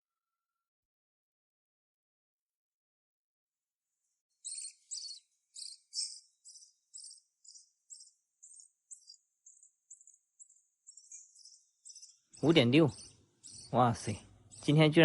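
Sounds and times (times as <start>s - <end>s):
bird chick cheeping: 4.4s - 13.8s.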